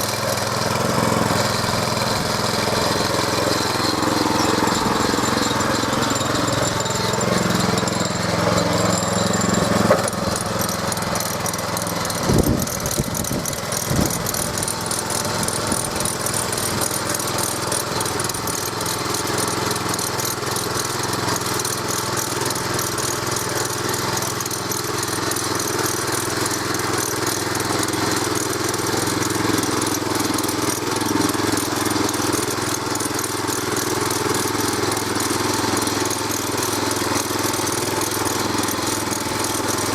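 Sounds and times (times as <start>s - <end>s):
tractor engine running under load: 0.0s - 39.9s.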